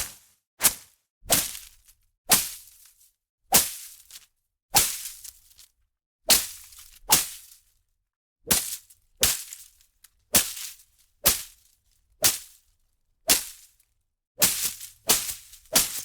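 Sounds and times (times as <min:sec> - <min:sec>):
swishing strikes through foliage: 0:00.0 - 0:01.7, 0:13.3 - 0:13.6, 0:14.4 - 0:16.0.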